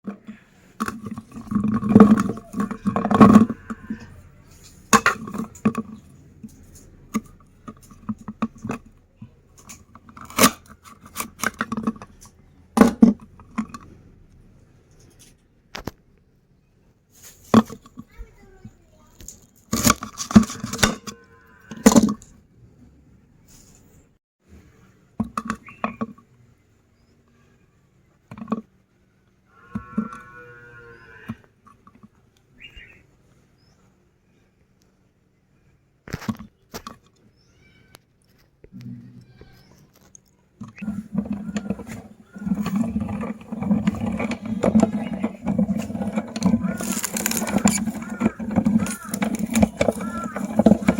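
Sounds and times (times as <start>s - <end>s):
candies crunching in a meat grinder: 0.9s - 4.1s, 19.2s - 21.0s, 40.8s - 50.9s.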